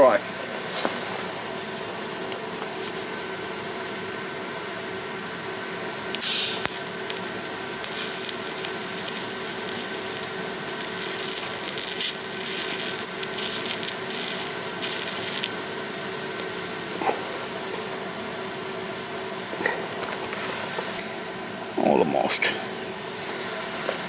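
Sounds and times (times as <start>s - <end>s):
steady machine hum: 0.0s - 24.0s
welding arc crackling: 6.1s - 18.2s.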